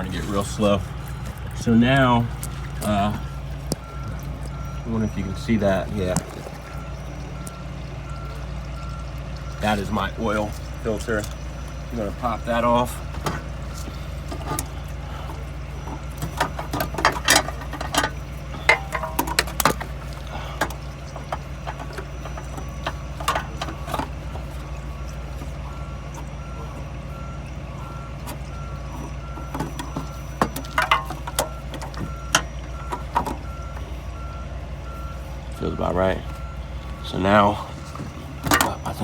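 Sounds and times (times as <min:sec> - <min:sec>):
steady low hum: 0:00.0 - 0:39.0
vehicle reversing beeper: 0:00.0 - 0:39.0
tools clinking and knocking: 0:13.0 - 0:24.6, 0:28.2 - 0:33.6, 0:38.4 - 0:39.0.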